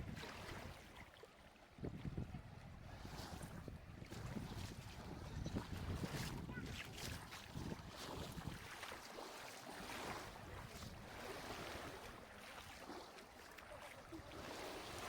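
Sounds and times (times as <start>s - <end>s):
small waves washing on shore: 0.0s - 15.0s
wind on microphone: 1.8s - 8.7s.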